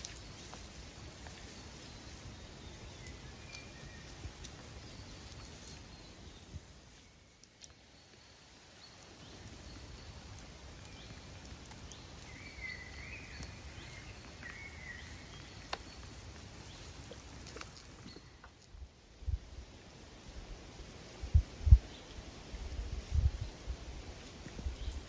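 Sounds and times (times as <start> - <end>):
faint ticks: 7.4 - 18.8.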